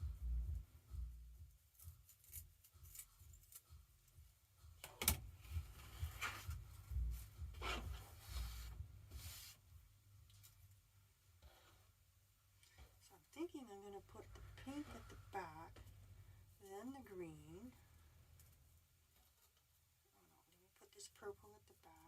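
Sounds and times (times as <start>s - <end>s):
scissor snips: 1.8s - 3.7s.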